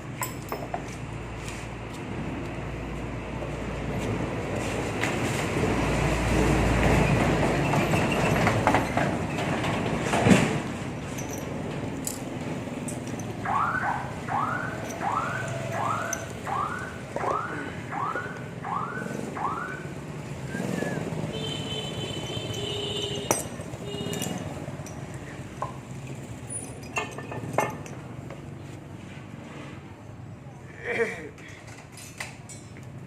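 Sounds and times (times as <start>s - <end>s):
sharp metal clinks: 22.2s - 25.4s.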